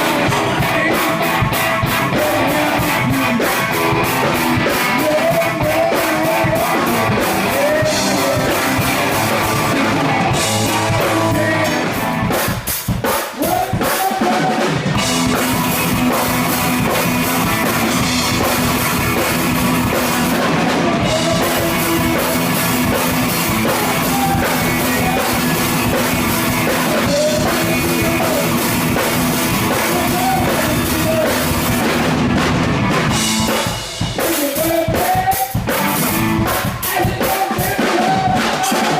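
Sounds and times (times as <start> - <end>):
person singing: 0.0 - 12.3, 13.3 - 14.9, 20.3 - 31.9, 34.1 - 38.9
drum kit: 0.0 - 38.9
live rock band playing: 0.0 - 38.9.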